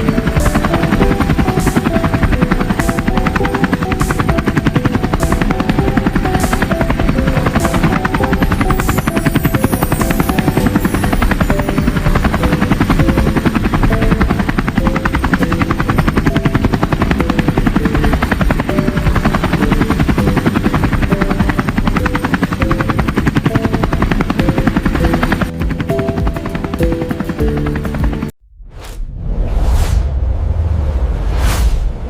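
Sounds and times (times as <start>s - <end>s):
helicopter rotor chopping: 0.0s - 28.4s.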